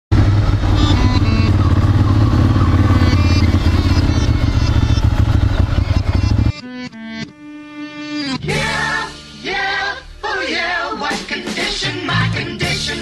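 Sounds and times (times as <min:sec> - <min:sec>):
motorcycle engine running: 0:00.1 - 0:06.6.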